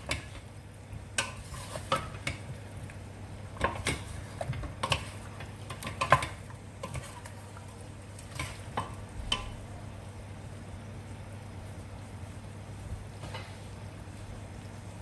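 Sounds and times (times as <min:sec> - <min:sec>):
faint sizzle: 0:00.0 - 0:15.0
utensil scraping a pan: 0:01.2 - 0:02.5, 0:03.6 - 0:07.6, 0:08.2 - 0:09.6.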